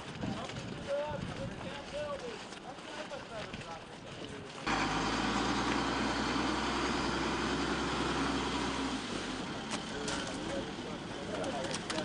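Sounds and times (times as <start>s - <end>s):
engine running steadily: 4.6s - 12.0s.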